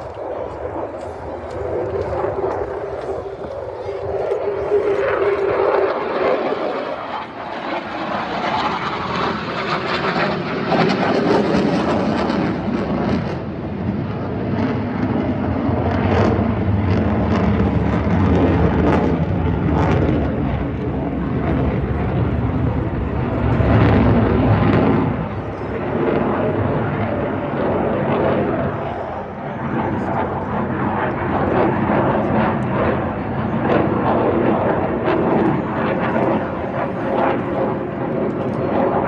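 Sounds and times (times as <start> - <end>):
aircraft engine overhead: 0.0 - 39.0.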